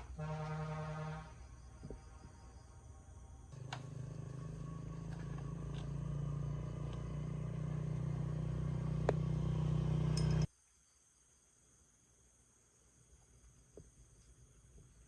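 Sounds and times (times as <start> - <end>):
engine rumbling: 2.8 - 10.5.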